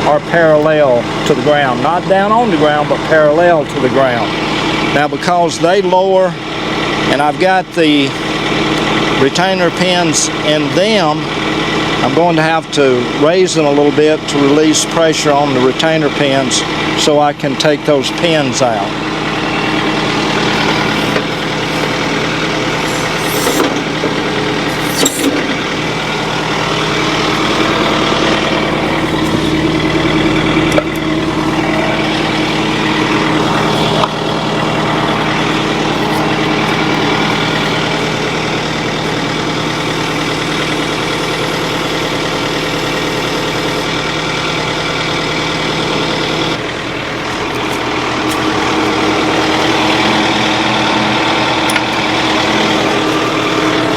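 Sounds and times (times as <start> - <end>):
tractor engine running: 0.0 - 53.9
hydraulics raising arms: 8.1 - 53.9.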